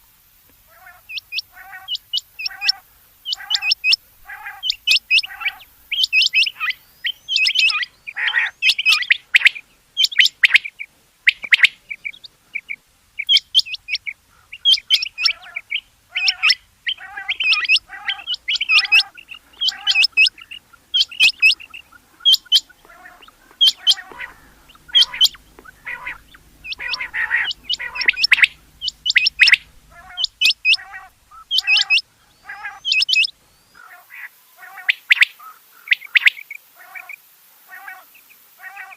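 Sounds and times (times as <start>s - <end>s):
quail calling: 0.6s - 38.9s.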